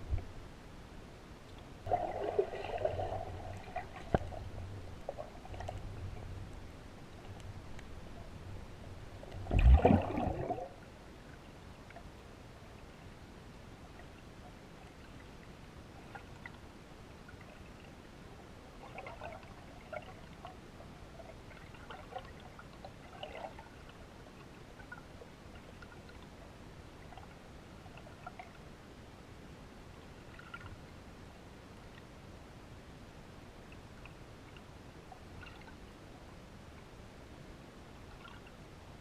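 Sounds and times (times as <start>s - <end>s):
steady low rumble: 0.0s - 11.7s
water splashing and trickling: 1.5s - 12.1s, 18.7s - 28.7s, 30.3s - 30.9s.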